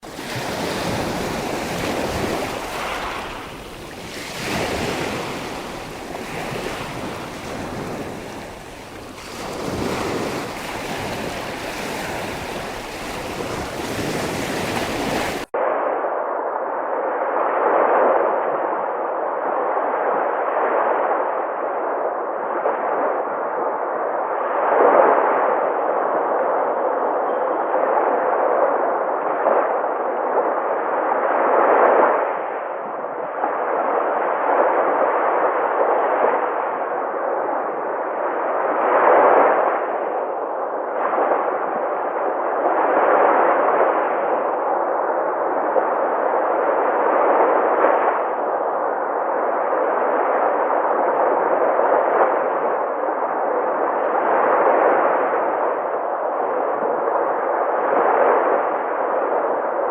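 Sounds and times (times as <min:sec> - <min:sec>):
sea surf rushing: 0:00.0 - 0:15.5.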